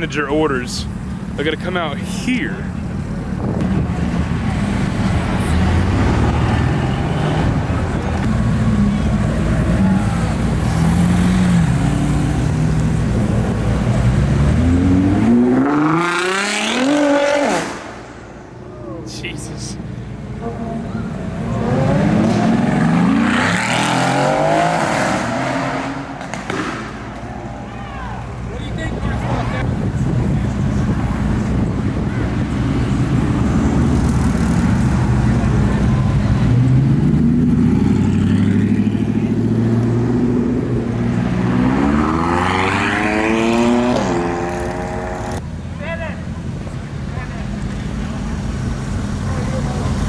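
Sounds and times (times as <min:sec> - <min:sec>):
sports car accelerating past: 0:08.4 - 0:18.1, 0:20.7 - 0:27.1, 0:32.7 - 0:45.4.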